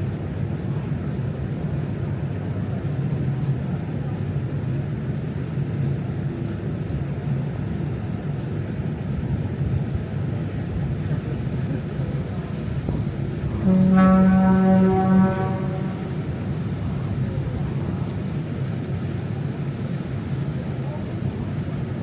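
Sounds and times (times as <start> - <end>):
boat engine rumbling: 6.5 - 22.0.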